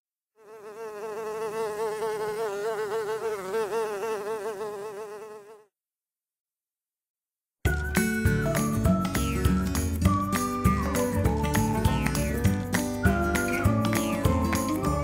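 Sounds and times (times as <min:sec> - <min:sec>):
housefly buzzing: 0:00.4 - 0:05.7, 0:11.6 - 0:15.0.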